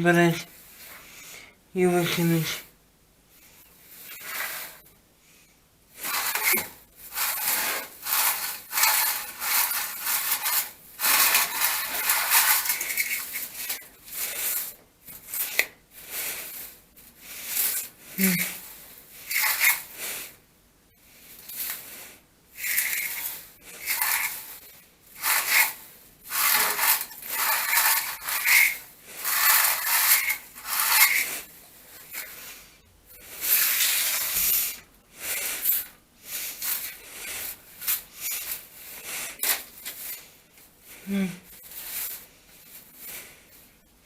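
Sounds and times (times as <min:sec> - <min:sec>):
debris scraping on floor: 0:06.0 - 0:16.7, 0:21.4 - 0:32.6.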